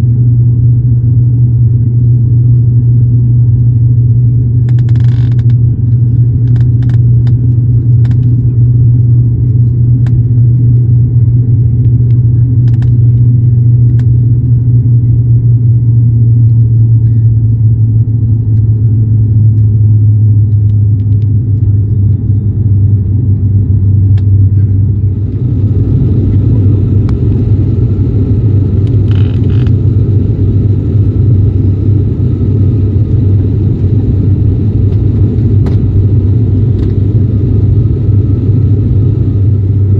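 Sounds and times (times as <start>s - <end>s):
aircraft cabin drone: 0.0s - 39.9s.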